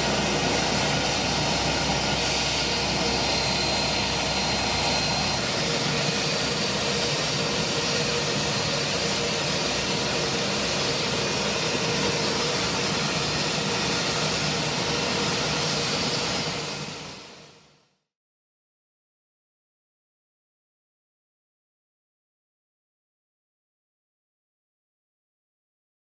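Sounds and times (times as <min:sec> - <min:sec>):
high engine whine: 0:00.0 - 0:17.6
jet engines running: 0:00.0 - 0:17.7.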